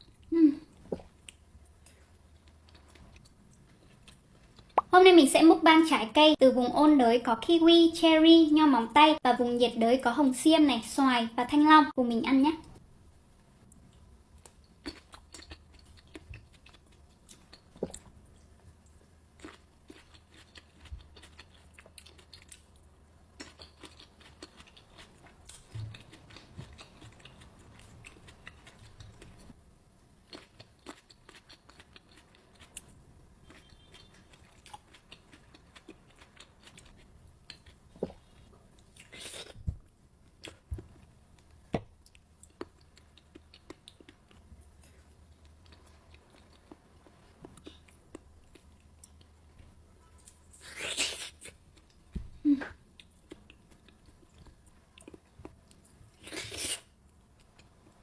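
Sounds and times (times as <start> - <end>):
person biting and chewing fruit: 50.5 - 51.6, 55.0 - 57.0.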